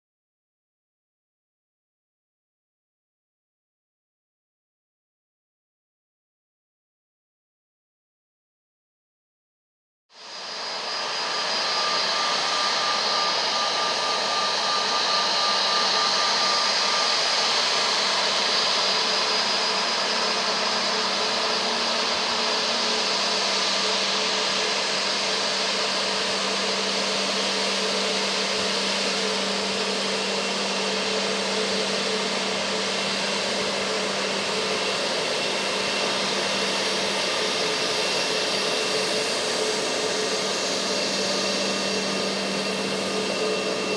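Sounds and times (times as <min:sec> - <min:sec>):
jet engines whining and rushing: 0:10.2 - 0:43.9.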